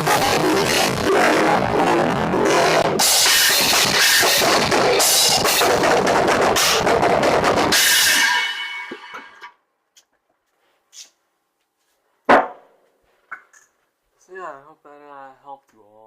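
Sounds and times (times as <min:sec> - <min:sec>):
drum kit playing fast: 0:00.0 - 0:09.4
cymbal ringing out: 0:07.7 - 0:09.5.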